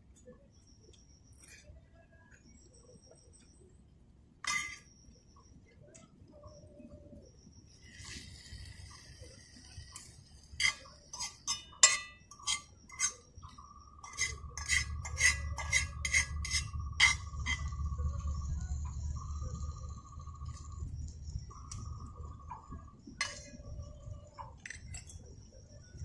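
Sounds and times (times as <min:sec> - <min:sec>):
dishes and utensils clinking: 0:04.5 - 0:04.9, 0:10.0 - 0:13.2
steady high tone: 0:13.6 - 0:24.4
low rumble: 0:14.4 - 0:26.0.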